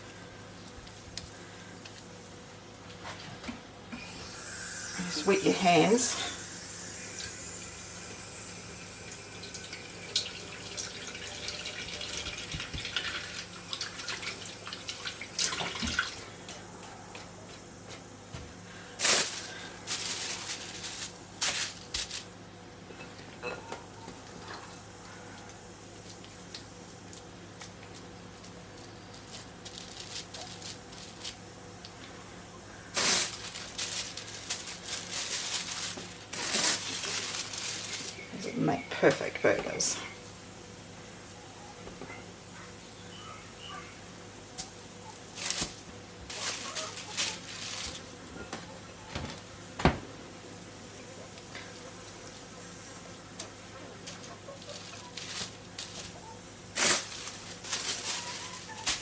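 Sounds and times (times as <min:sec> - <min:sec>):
kitchen tap running: 0:06.6 - 0:16.2.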